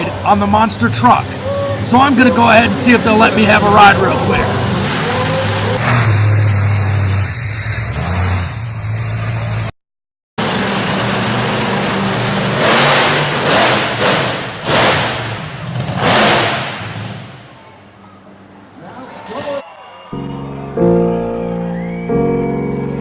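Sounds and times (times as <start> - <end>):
monster truck engine revving: 0.0 - 9.7, 10.4 - 17.7.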